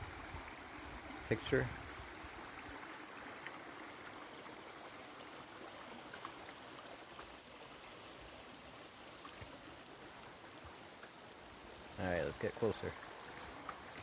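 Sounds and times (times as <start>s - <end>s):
faint waterfall rush: 0.0s - 14.0s.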